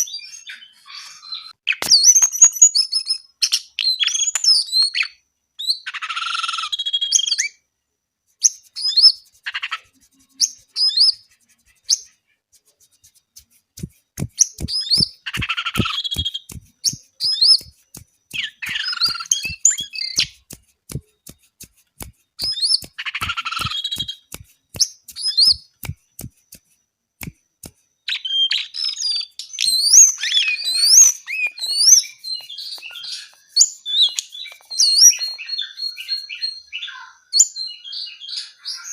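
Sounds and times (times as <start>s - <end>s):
bird chirping and trilling: 0.0s - 7.6s, 8.4s - 21.0s, 22.4s - 25.8s, 28.1s - 38.9s
sharp clicks: 12.9s - 27.8s, 32.3s - 35.4s.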